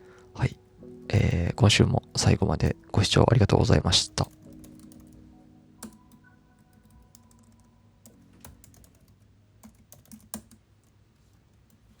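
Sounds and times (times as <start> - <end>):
computer keyboard keystrokes: 4.2 - 5.2, 5.8 - 11.0.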